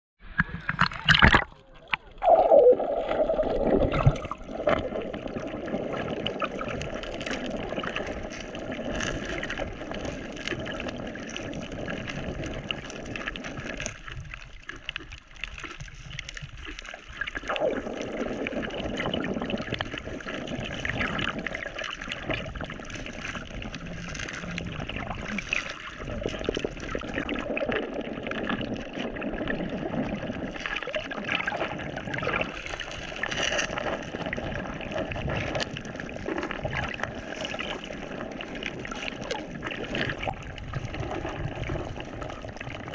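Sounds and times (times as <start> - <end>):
sea water sloshing and gurgling: 0.2 - 42.9.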